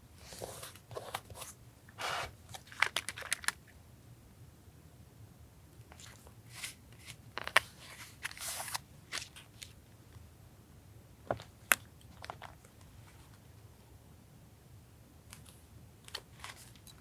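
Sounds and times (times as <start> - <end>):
paper rustling and crinkling: 0.2 - 3.6, 6.0 - 9.7, 16.1 - 17.0.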